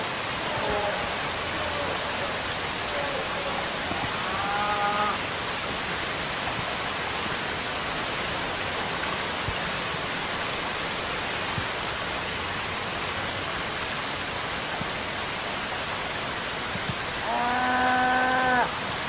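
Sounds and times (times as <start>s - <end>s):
steady rainfall: 0.0s - 19.0s
faint drip ticks: 0.5s - 4.6s.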